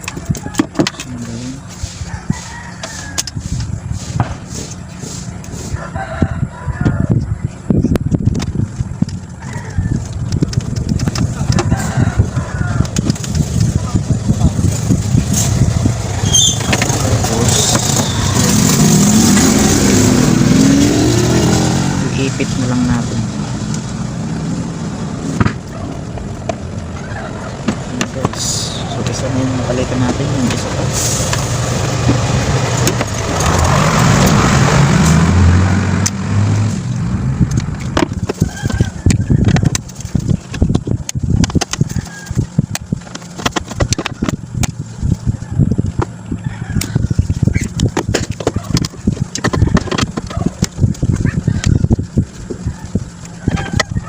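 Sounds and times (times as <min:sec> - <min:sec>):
hand tools clicking and knocking: 0:00.0 - 0:01.3, 0:47.6 - 0:51.8
motor engine speeding up: 0:03.2 - 0:54.0.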